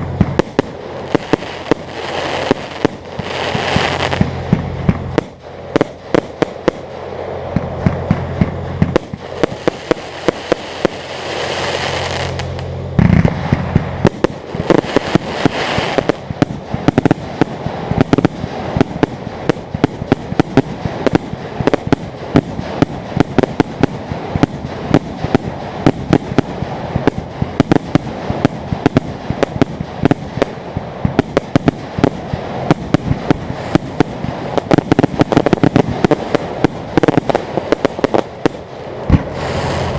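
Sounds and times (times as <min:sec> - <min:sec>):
fireworks bangs and crackling: 0:00.0 - 0:39.9
steady low hum: 0:00.0 - 0:39.9
hiss: 0:05.3 - 0:39.9.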